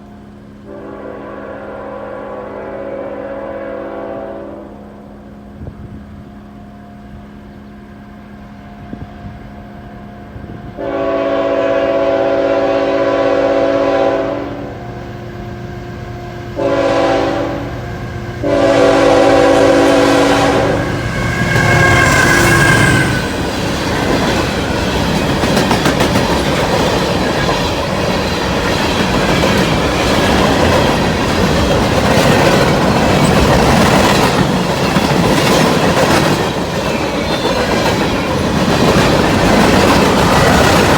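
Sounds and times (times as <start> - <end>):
diesel locomotive hum: 0.0 - 40.9
freight train rumbling past: 0.0 - 40.9
locomotive air horn blasts: 0.6 - 5.4, 10.7 - 15.1, 15.8 - 23.4
wheel clickety-clack: 23.2 - 40.9.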